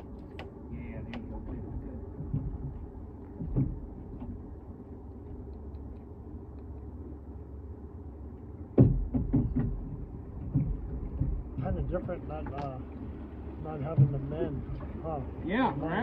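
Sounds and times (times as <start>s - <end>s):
low steady rumble: 0.0s - 16.0s
burst of knocks: 8.8s - 11.4s.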